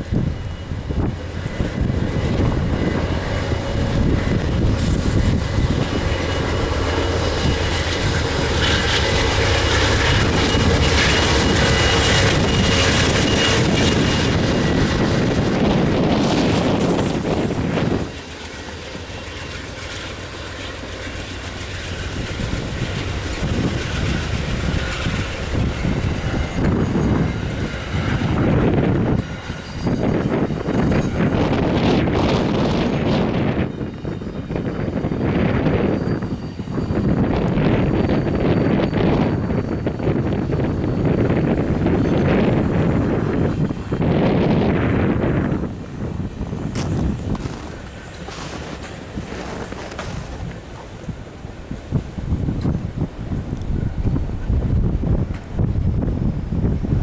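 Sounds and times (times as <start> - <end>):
gusty wind on microphone: 0.0 - 18.2, 21.7 - 57.0
passenger train passing: 0.0 - 57.0
train wheels clicking on rails: 0.0 - 57.0.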